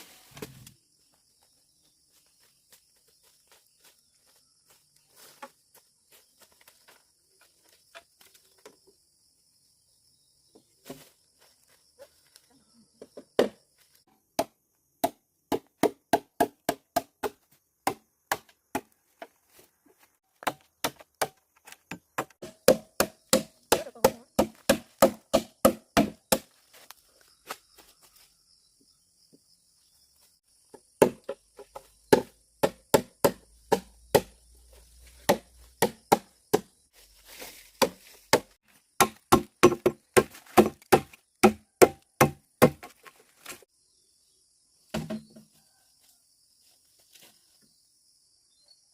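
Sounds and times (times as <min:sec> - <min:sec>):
chopping strikes on wood: 0:14.4 - 0:18.9, 0:20.4 - 0:26.5, 0:31.0 - 0:34.4, 0:35.2 - 0:36.7, 0:37.8 - 0:43.0, 0:44.9 - 0:45.4.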